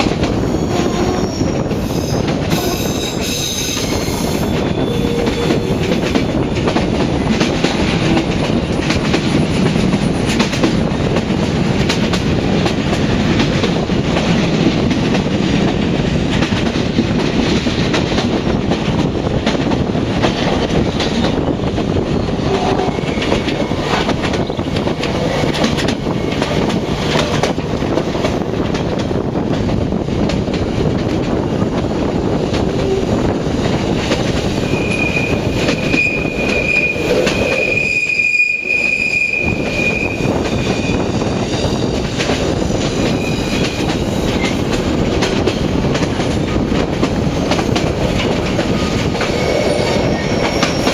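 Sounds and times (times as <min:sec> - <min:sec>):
train rumbling: 0:00.0 - 0:50.9
wheels clicking over rail joints: 0:22.5 - 0:34.8.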